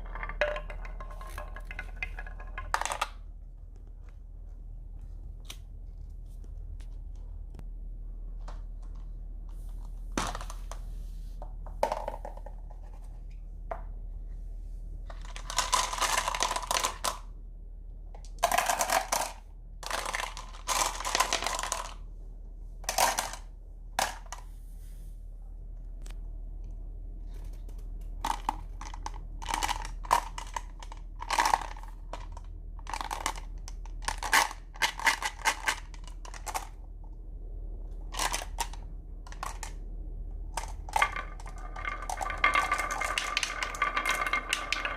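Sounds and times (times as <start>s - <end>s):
marbles rattling down wooden track: 0.0s - 3.2s, 11.8s - 12.5s, 15.1s - 17.2s, 18.4s - 22.0s, 22.9s - 24.3s, 28.2s - 36.7s, 38.1s - 39.8s, 40.5s - 44.9s
steady low hum: 0.0s - 44.9s.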